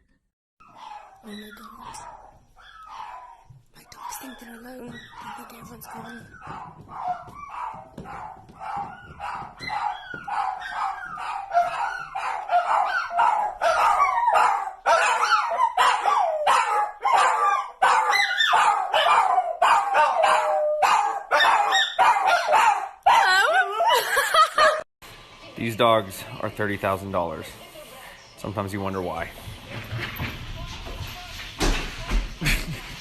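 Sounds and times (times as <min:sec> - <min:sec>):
dogs howling and whining: 0:00.6 - 0:24.8
dogs yipping and barking: 0:00.6 - 0:24.8.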